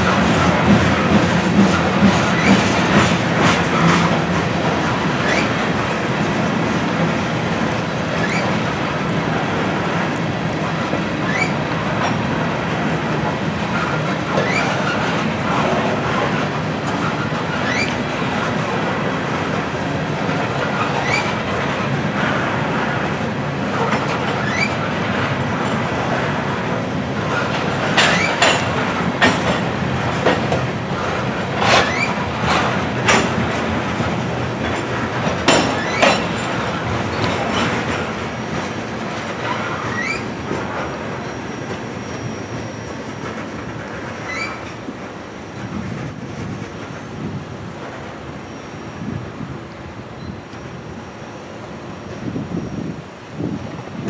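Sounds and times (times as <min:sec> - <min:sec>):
wheels clacking over rail joints: 0:00.0 - 0:48.6
freight train rolling past: 0:00.0 - 0:54.0
wheel squeals: 0:05.2 - 0:05.6, 0:08.2 - 0:08.6, 0:11.2 - 0:11.6, 0:14.3 - 0:15.1, 0:17.0 - 0:18.1, 0:20.8 - 0:21.5, 0:24.3 - 0:24.9, 0:31.6 - 0:32.7, 0:35.5 - 0:37.8, 0:39.3 - 0:44.8, 0:48.4 - 0:49.2, 0:50.2 - 0:51.4.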